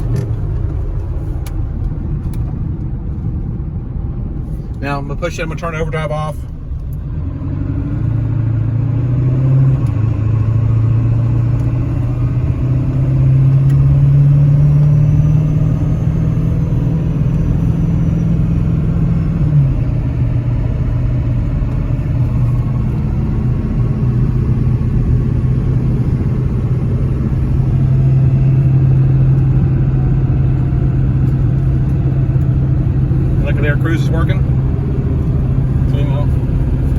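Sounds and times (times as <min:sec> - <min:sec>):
diesel truck engine accelerating: 0:00.0 - 0:36.9.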